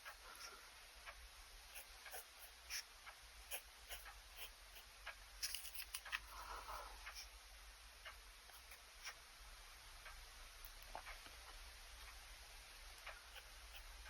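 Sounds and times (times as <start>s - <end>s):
pen scratching on paper: 1.7s - 2.9s, 3.5s - 4.9s, 13.2s - 14.0s.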